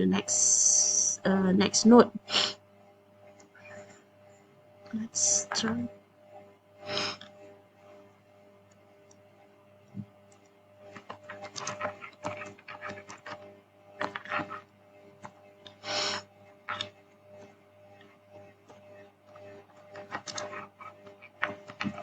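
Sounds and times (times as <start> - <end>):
steady electrical hum: 0.0 - 22.0
puff of breath: 6.9 - 7.2.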